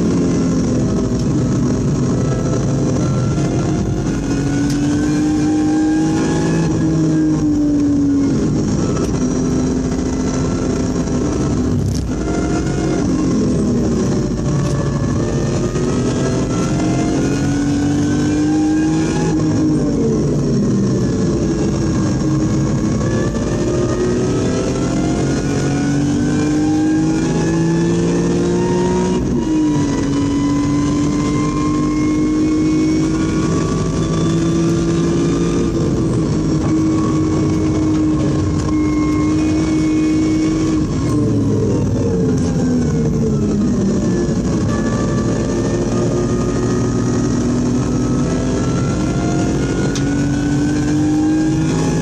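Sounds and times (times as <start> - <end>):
car engine accelerating: 0.0 - 52.0.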